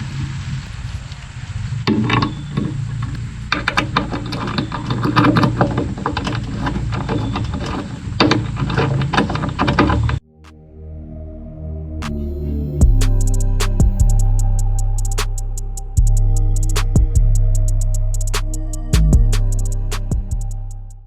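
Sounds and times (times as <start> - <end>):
steady low hum: 10.2 - 21.0.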